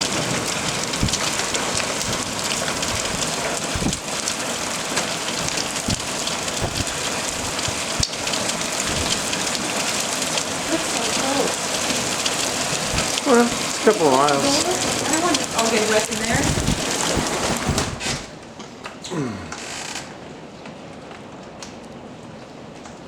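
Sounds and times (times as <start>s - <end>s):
rain pattering: 0.0s - 18.1s
dull thuds: 0.7s - 9.5s, 12.9s - 13.2s, 16.2s - 18.3s.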